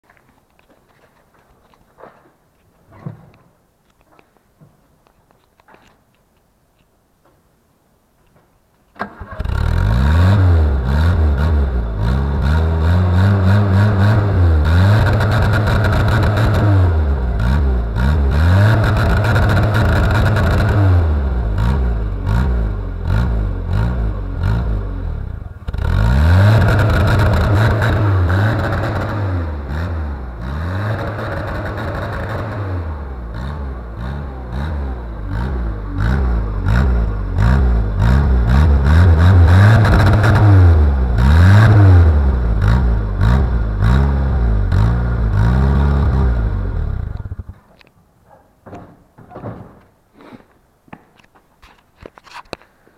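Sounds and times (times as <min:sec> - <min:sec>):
car engine revving against limiter: 0:09.4 - 0:47.4.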